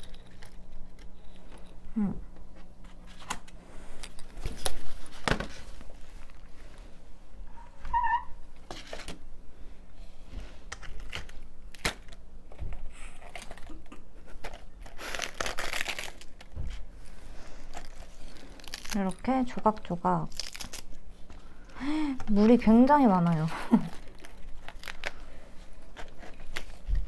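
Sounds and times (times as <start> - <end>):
lettuce leaves tearing: 13.0 - 16.5, 17.7 - 21.0, 23.2 - 25.2.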